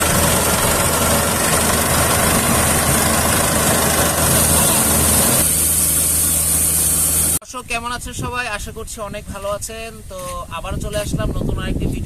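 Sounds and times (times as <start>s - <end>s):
harvester engine running: 0.0s - 7.4s
loud machine hiss: 0.0s - 7.4s.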